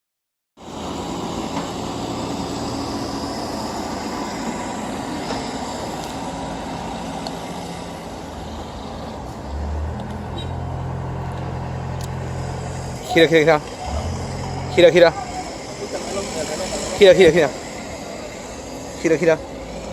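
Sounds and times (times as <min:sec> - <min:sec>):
heavy machine engine running: 0:00.6 - 0:19.9
deep loud hum: 0:11.8 - 0:19.9.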